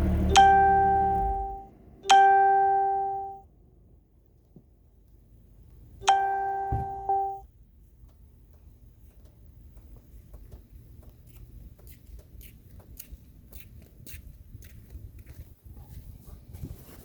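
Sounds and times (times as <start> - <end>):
car warning chime gongs: 0.0 - 3.6, 6.0 - 7.5
car engine idling: 0.0 - 7.4.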